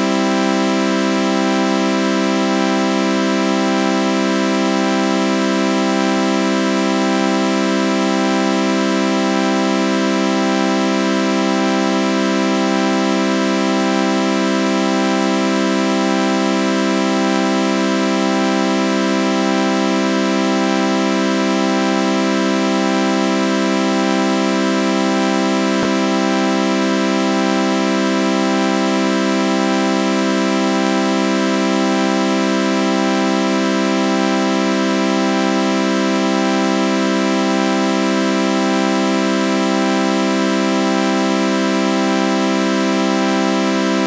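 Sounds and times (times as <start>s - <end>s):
sustained synthesizer chord: 25.6s - 26.8s.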